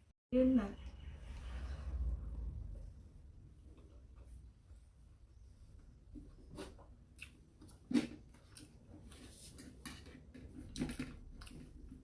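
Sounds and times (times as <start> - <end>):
people chewing with mouth smacks: 6.6 - 12.0.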